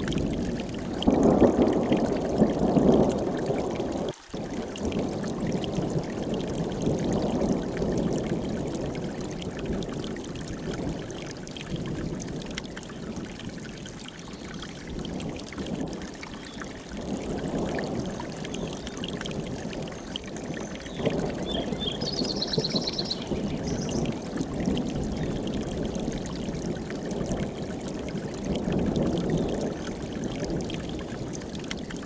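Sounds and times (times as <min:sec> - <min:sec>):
stream rushing over rocks: 0:00.0 - 0:32.0.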